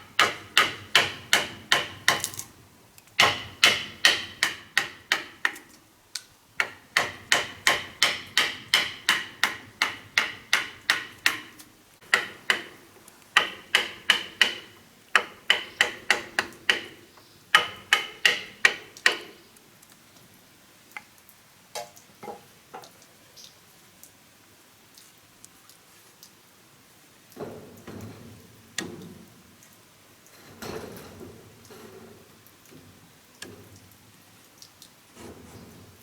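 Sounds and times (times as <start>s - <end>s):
hammer driving nails into wood: 0.2s - 2.5s, 3.2s - 5.7s, 6.6s - 12.8s, 13.4s - 19.4s.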